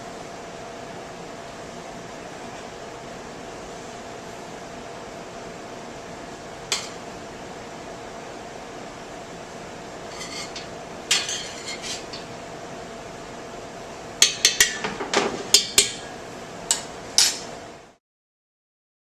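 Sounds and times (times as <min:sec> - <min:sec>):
metal utensils clinking on dishes: 0:10.2 - 0:12.2.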